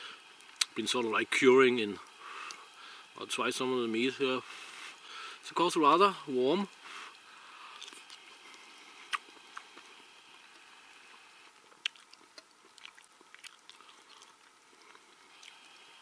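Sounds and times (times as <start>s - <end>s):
faint chewing: 2.0s - 2.7s, 6.7s - 15.9s.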